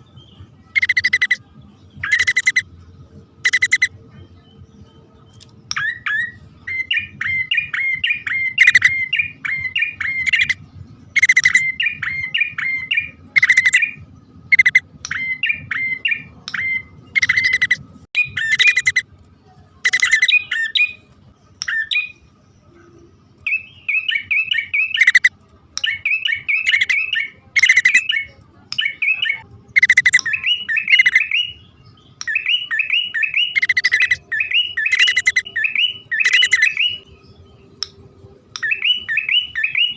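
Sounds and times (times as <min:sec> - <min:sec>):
faint low hum: 0:00.0 - 0:39.9
bird chattering calls: 0:00.7 - 0:01.4, 0:02.0 - 0:02.7, 0:03.4 - 0:03.9, 0:05.7 - 0:19.0, 0:19.8 - 0:21.0, 0:23.5 - 0:31.6, 0:32.2 - 0:37.0.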